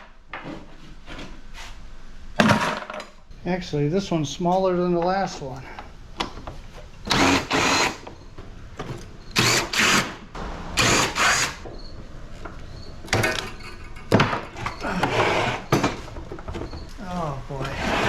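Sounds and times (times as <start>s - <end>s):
power drill bursts: 7.0s - 8.0s, 9.3s - 11.7s.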